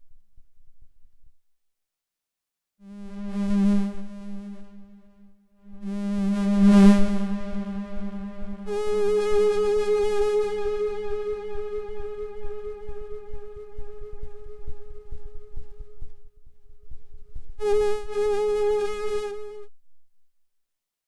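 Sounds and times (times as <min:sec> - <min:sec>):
buzzy synthesizer drone: 0:06.9 - 0:16.0, 0:17.6 - 0:19.6.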